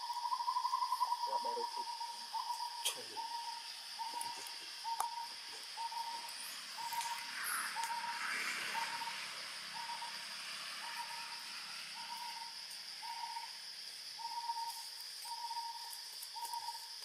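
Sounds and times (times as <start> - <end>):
bird hooting: 0.0 - 13.6, 14.2 - 16.8
high-pitched insect drone: 0.0 - 17.0.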